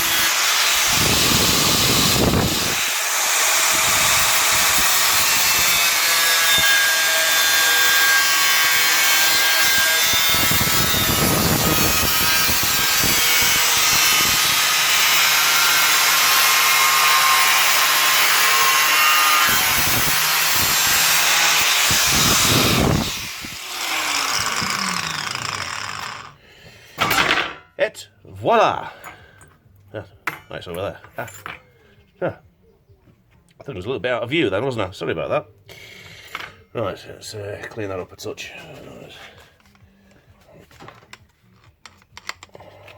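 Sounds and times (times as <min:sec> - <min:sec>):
angle grinder cutting steel: 0:00.0 - 0:26.4
grinder disc spinning down: 0:19.5 - 0:26.4.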